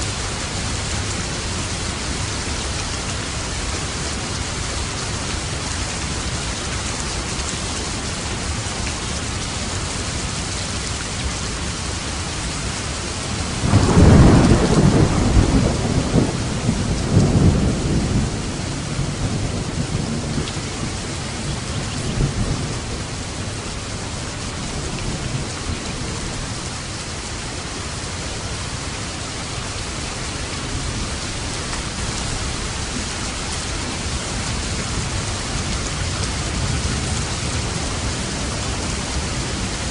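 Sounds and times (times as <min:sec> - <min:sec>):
heavy rain: 0:00.0 - 0:39.9
thunder rumbling: 0:13.5 - 0:26.6.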